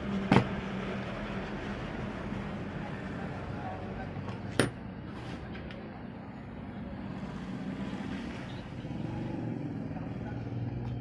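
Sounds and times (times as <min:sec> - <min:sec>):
low rumble of vehicle noise: 0:00.0 - 0:11.0.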